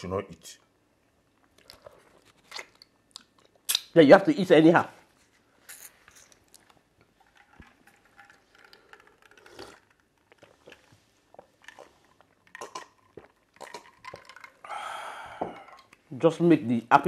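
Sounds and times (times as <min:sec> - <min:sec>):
faint chewing and mouth clicks: 0:01.2 - 0:04.0, 0:05.8 - 0:16.1.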